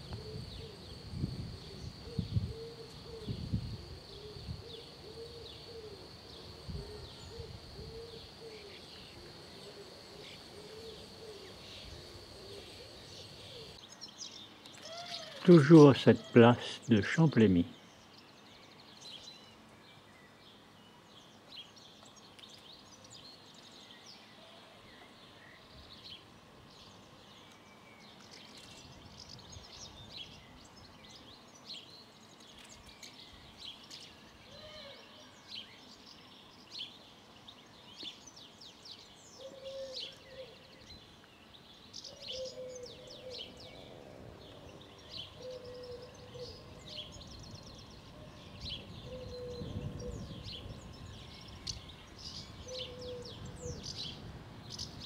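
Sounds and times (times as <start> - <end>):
lower bird call: 0.0 - 13.8, 14.8 - 16.9, 42.0 - 55.0
birds chirping: 0.0 - 20.1, 26.2 - 55.0.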